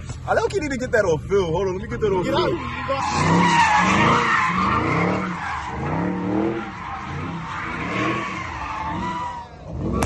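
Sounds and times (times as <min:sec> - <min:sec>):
car engine revving: 0:01.2 - 0:10.0
car tires squealing: 0:02.1 - 0:10.0.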